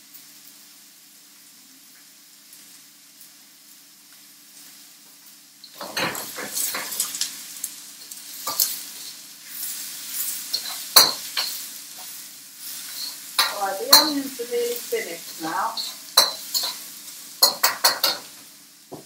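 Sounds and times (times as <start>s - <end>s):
onions sizzling in a wok: 0.0s - 19.0s
utensil scraping and clinking pan: 5.7s - 7.3s, 10.5s - 11.6s, 12.8s - 14.4s, 15.0s - 16.8s.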